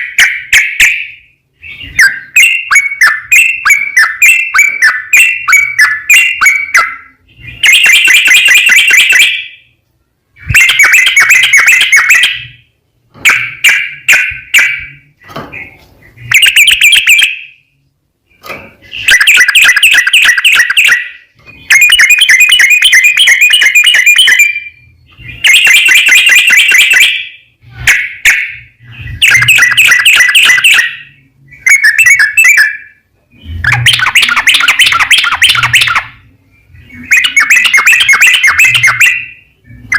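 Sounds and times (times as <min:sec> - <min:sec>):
bulbul singing: 0:00.0 - 0:09.8, 0:10.4 - 0:39.9.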